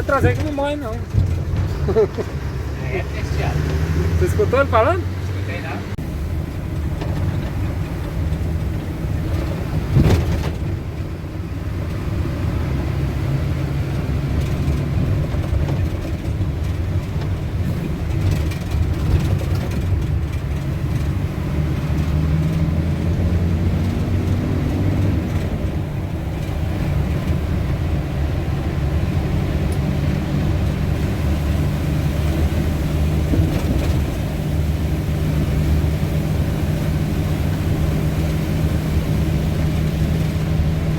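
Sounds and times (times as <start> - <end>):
vehicle engine and road rumble: 0.0 - 40.9.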